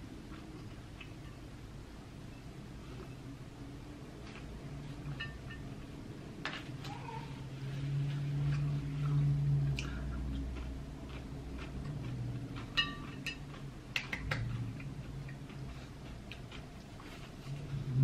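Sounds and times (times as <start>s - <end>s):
fork clinking on plate: 5.1s - 5.7s, 12.6s - 13.6s
chewing: 8.4s - 17.8s.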